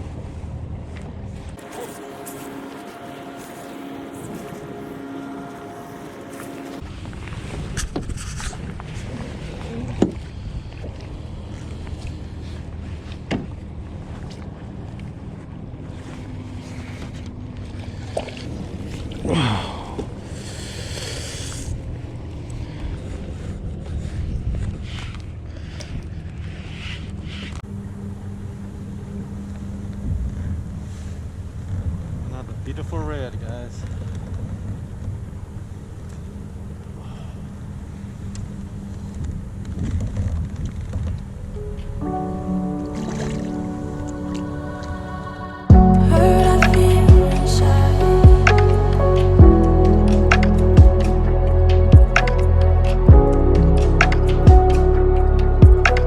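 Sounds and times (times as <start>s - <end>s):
faint steady hum: 0.0s - 33.0s
wind rumbling on microphone: 5.8s - 19.3s, 21.6s - 27.6s.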